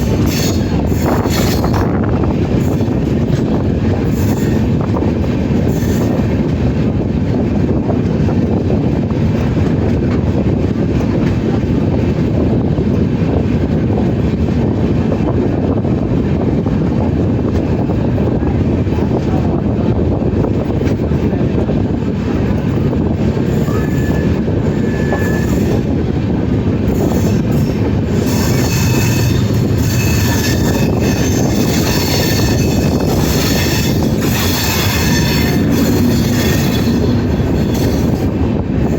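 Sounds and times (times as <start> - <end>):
train wheels rumbling on rails: 0.0 - 38.9
high wheel squeal: 23.5 - 25.9, 27.0 - 38.4.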